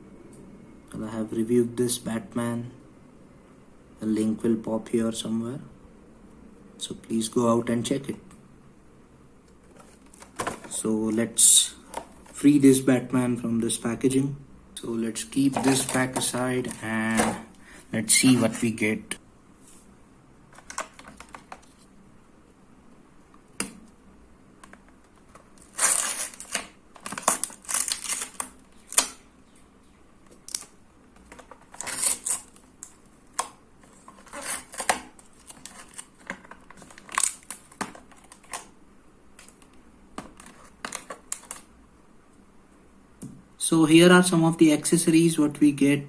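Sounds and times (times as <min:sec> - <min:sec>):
stiff plastic packaging crinkling: 0:15.5 - 0:17.5, 0:25.6 - 0:29.2, 0:31.3 - 0:32.7, 0:33.9 - 0:38.7.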